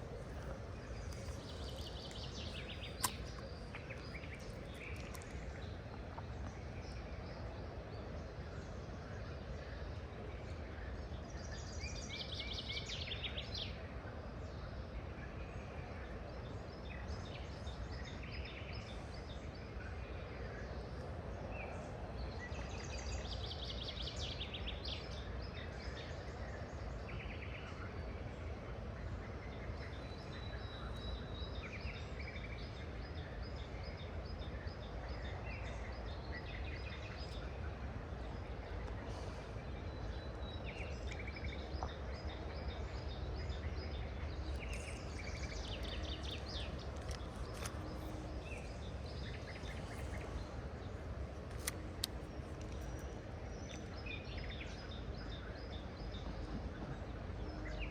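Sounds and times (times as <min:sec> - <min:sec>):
bird chirps: 0:00.0 - 0:05.6
outdoor background noise: 0:00.0 - 0:57.9
songbirds singing: 0:00.0 - 0:57.9.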